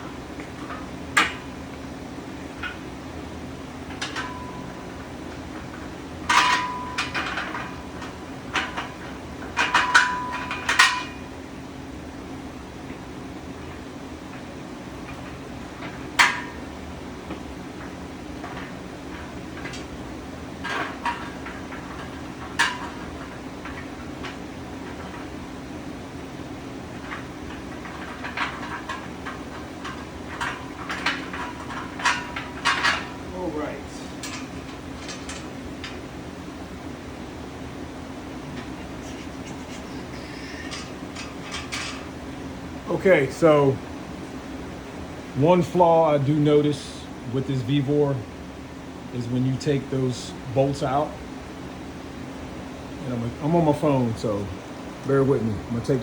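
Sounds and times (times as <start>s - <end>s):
steady low hum: 0.0s - 56.0s
metal clanks with ringing: 6.3s - 7.7s, 9.6s - 11.3s.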